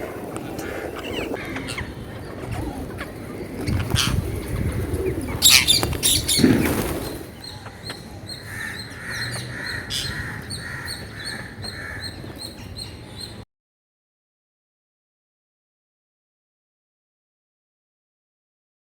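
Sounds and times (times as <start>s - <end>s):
wings flapping: 0.0s - 7.4s
parakeets calling: 0.0s - 13.4s.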